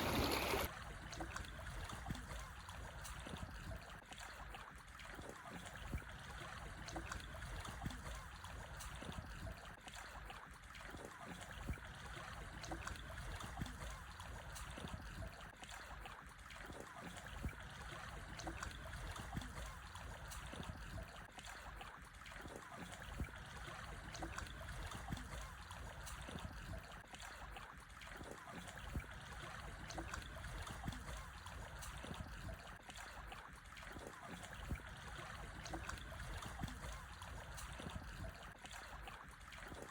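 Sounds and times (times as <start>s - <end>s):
water splashing between rocks: 0.0s - 0.7s
waves washing over stones: 0.0s - 0.7s.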